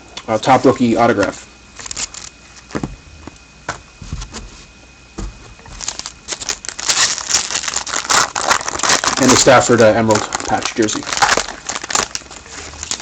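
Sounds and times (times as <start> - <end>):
wrapper crinkling: 1.8 - 2.8, 5.6 - 13.0.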